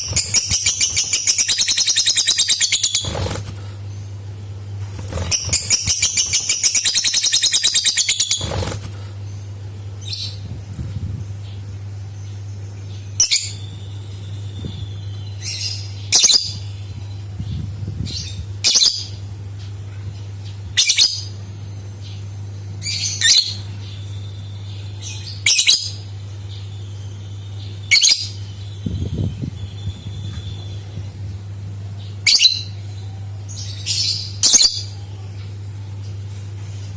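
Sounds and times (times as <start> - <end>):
lovebird squawks: 0.0 - 3.4, 5.1 - 8.8
steady low hum: 0.0 - 36.9.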